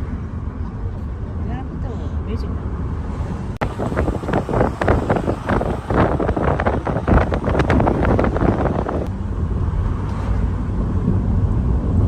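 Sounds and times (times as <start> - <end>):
car road rumble: 0.0 - 12.0
wind buffeting microphone: 2.9 - 12.0.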